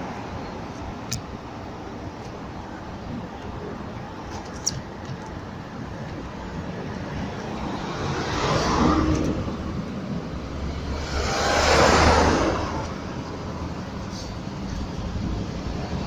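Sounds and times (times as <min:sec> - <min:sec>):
rushing noise: 0:05.6 - 0:16.0.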